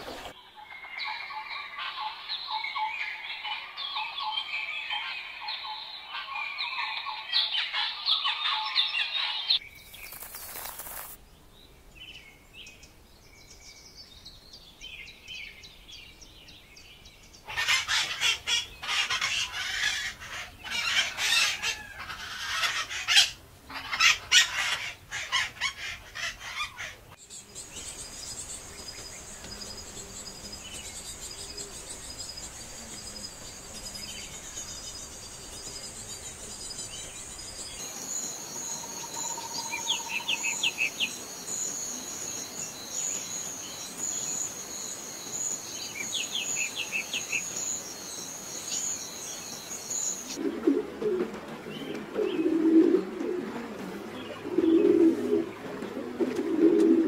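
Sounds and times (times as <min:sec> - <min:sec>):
faint falling bird chirps: 0:09.7 - 0:11.2
high pulsing insect trilling: 0:27.2 - 0:50.4.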